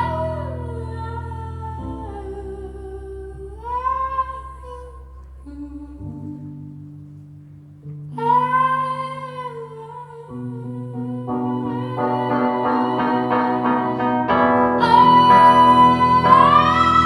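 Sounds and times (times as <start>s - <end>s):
sustained keyboard chords: 10.7s - 17.0s.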